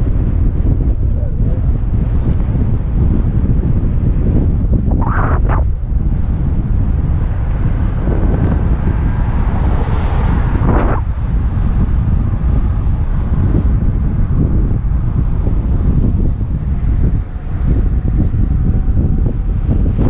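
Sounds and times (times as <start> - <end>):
wind buffeting microphone: 0.0 - 20.0
higher rushing noise: 4.7 - 13.8.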